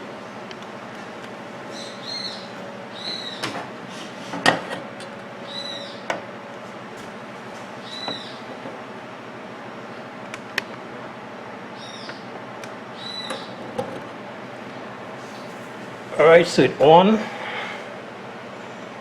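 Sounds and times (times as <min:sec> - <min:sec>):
faint hum: 0:00.0 - 0:19.0
bird chirping: 0:01.7 - 0:03.4, 0:05.5 - 0:06.1, 0:07.8 - 0:08.4, 0:11.8 - 0:12.3, 0:13.0 - 0:13.6.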